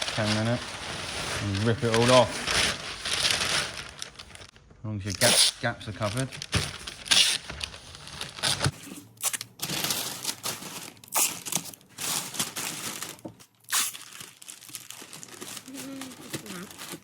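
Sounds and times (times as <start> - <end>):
paper crinkling and rustling: 0.0 - 17.0
tape torn from roll: 5.1 - 9.5.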